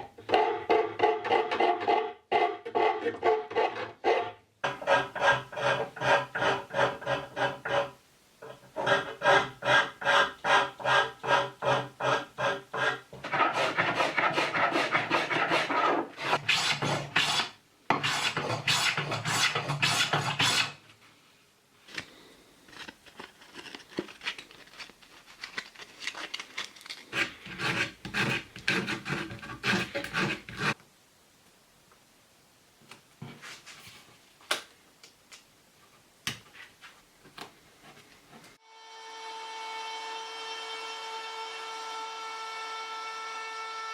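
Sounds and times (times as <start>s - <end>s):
hand tool scraping wood: 0.0s - 20.8s, 27.0s - 30.8s.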